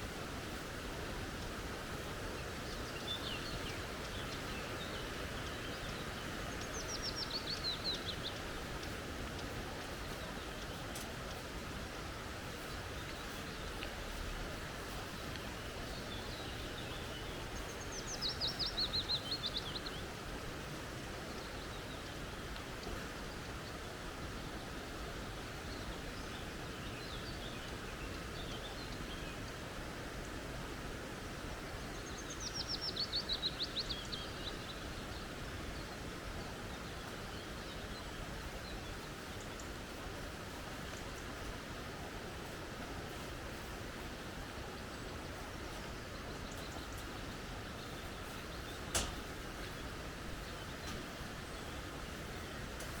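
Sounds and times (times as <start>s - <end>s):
flowing creek: 0.0s - 53.0s
small bird singing: 15.9s - 20.1s.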